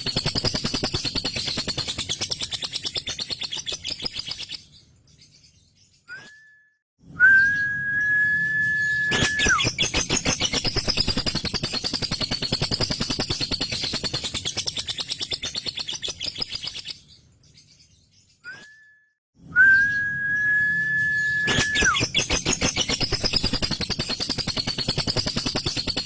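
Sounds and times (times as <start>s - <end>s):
high whistled bird tone: 6.0s - 16.8s, 18.4s - 26.0s
lovebird sharp chirps: 7.4s - 17.1s, 19.8s - 26.0s.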